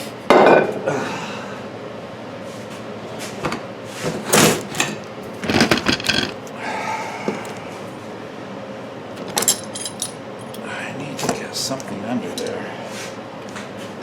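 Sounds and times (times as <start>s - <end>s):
metal tools clunking and scraping: 4.0s - 6.5s, 9.2s - 10.6s.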